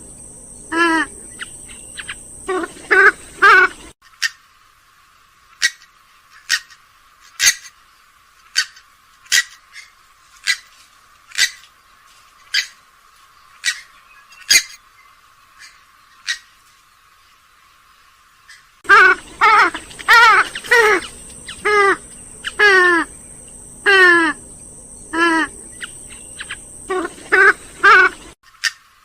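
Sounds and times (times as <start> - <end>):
bird calling sharply: 18.5 - 28.4.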